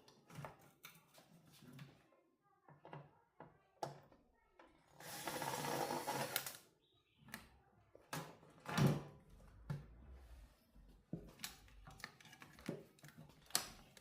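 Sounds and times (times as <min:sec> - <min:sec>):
scratchy mechanical noise: 0:05.0 - 0:06.6.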